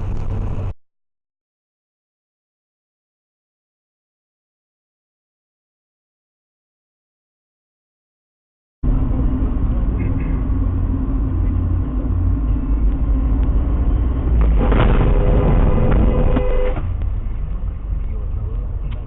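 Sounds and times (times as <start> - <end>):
car engine and tyre rumble: 0.0 - 0.8, 8.8 - 19.0
sudden rush of noise: 10.7 - 17.0.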